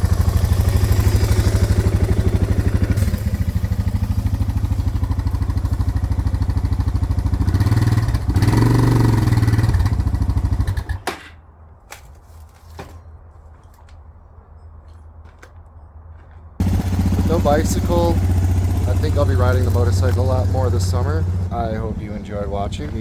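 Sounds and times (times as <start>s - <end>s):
motorcycle engine revving: 0.0s - 11.0s, 16.6s - 23.0s.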